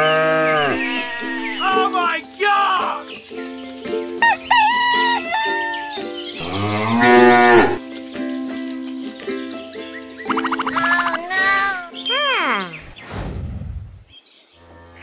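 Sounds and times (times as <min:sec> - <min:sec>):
cow mooing: 0:00.0 - 0:01.1, 0:06.4 - 0:07.8
background music: 0:00.0 - 0:12.6.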